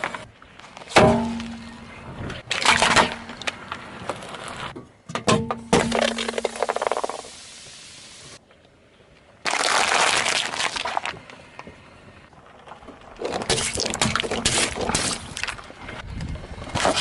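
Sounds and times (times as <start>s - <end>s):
brittle objects crushed under tyre: 2.4s - 4.7s, 5.6s - 7.3s, 9.4s - 11.6s, 12.4s - 15.7s, 16.7s - 17.0s.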